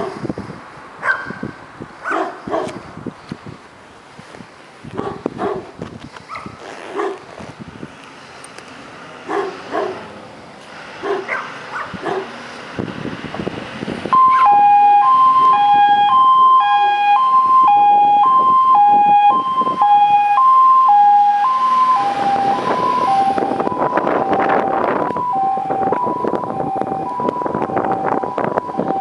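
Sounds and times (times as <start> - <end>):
dog barking: 1.0 - 1.4, 2.0 - 2.8, 5.0 - 5.7, 6.3 - 7.2, 9.3 - 10.0, 11.0 - 12.3
fire engine two-tone siren: 14.0 - 29.0.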